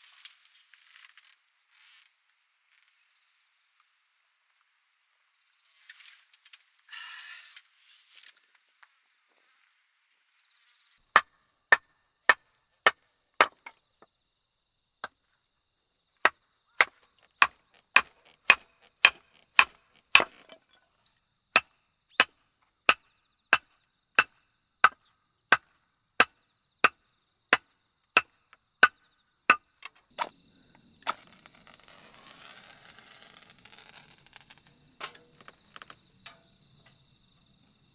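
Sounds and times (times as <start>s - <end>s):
firewood being chopped: 11.2s - 13.8s, 16.8s - 20.8s, 21.6s - 27.6s, 28.2s - 30.4s.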